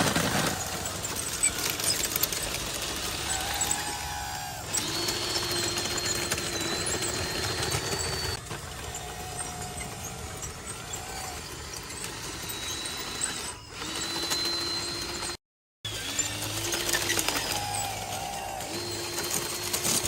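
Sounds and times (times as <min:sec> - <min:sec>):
small electric motors whining: 0:00.0 - 0:20.0
scattered clicks: 0:00.1 - 0:15.4.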